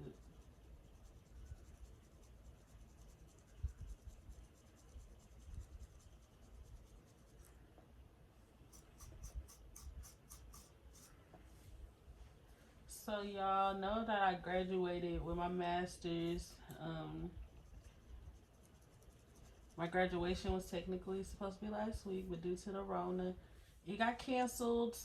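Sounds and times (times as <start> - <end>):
scratching on dry scalp: 0.0 - 7.7, 8.7 - 11.7, 15.4 - 22.6.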